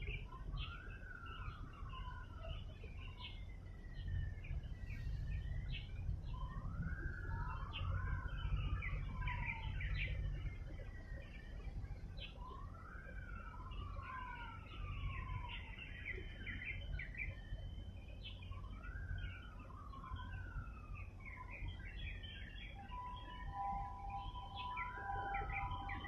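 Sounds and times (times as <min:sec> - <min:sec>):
birds chirping: 0:00.0 - 0:26.0
steady low rumble: 0:02.9 - 0:12.8.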